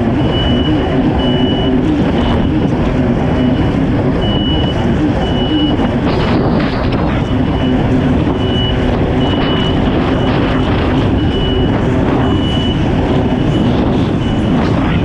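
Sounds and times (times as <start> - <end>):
jet ski engine running: 0.0 - 15.0
rushing wind and water: 0.0 - 15.0
short high beeps: 7.2 - 14.7.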